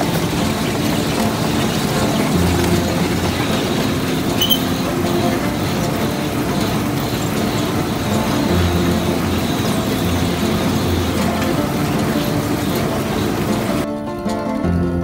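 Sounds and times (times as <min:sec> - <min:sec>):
vehicle engine running: 0:00.0 - 0:13.9
brief high chirp: 0:04.4 - 0:04.6.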